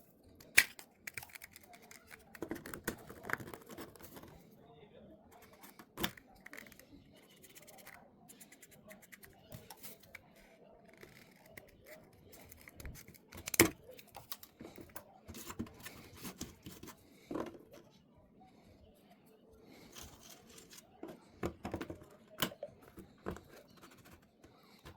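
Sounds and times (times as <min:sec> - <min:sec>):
clicking and scraping of tools: 0:19.8 - 0:24.9.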